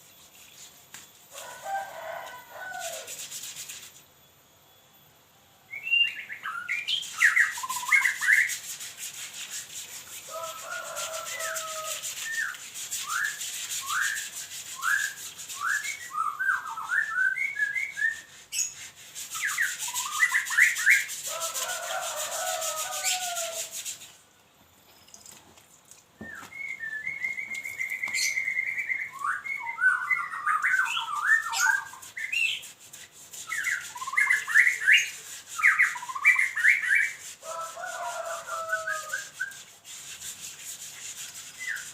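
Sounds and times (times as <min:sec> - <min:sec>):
rasping scrubbing: 0:00.1 - 0:04.0, 0:07.0 - 0:16.1, 0:17.8 - 0:24.2, 0:31.1 - 0:41.9
songbird chirping: 0:04.7 - 0:08.3, 0:26.2 - 0:32.6.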